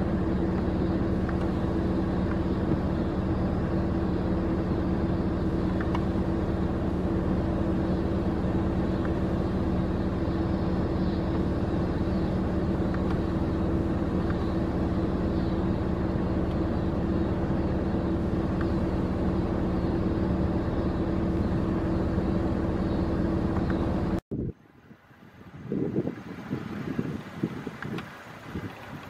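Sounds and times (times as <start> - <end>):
vehicle engine idling: 0.0 - 24.6
wind buffeting microphone: 23.9 - 29.0.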